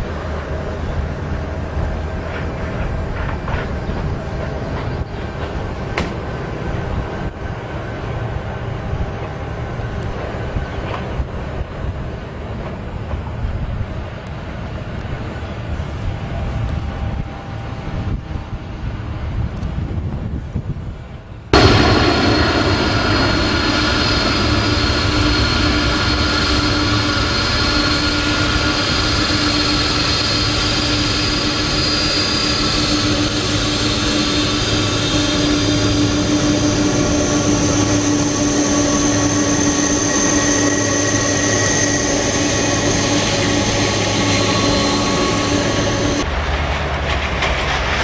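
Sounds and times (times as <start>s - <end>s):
jet engines whining: 21.6s - 47.8s.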